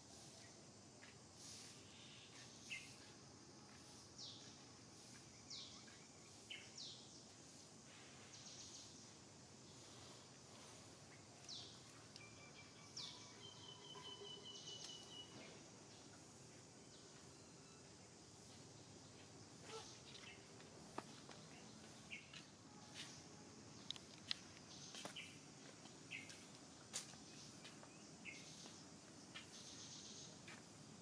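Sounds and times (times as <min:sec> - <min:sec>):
low background hiss: 0:00.0 - 0:31.0
faint bird chirps: 0:00.1 - 0:16.2, 0:17.0 - 0:20.6
thin bird trill: 0:12.1 - 0:15.4.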